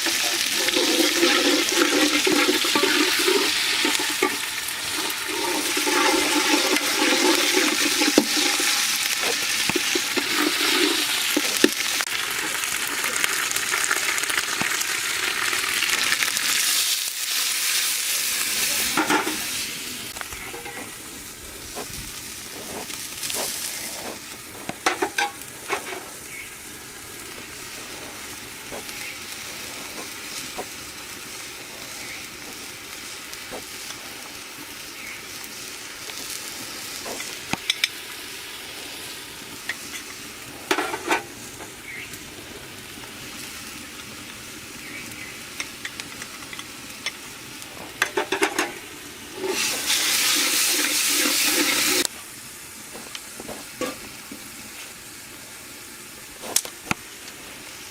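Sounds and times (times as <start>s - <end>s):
metal spatula scraping a pan: 0.0s - 11.9s, 20.4s - 21.0s, 22.5s - 26.5s, 39.7s - 41.7s, 47.8s - 52.0s
chicken sizzling in oil: 0.0s - 57.9s
loud hiss: 0.0s - 57.9s.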